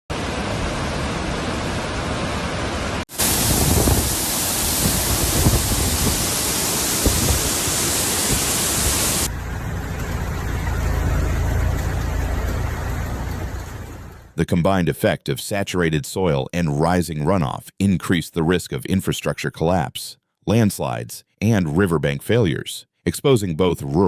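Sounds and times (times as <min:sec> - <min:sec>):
heavy rain rushing: 0:00.1 - 0:14.3.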